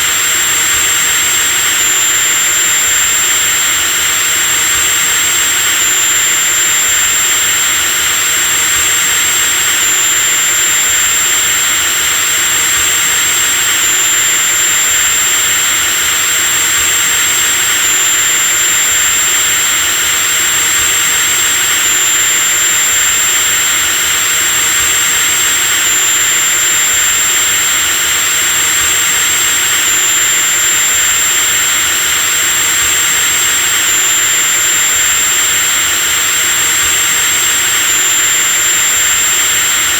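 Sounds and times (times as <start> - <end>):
hiss: 0.0 - 39.9
power drill motor whine: 0.0 - 39.9.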